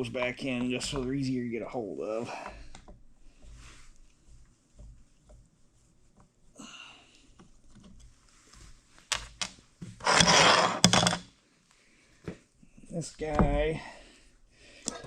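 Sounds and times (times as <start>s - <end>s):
loud scraping rasp: 10.0s - 11.0s.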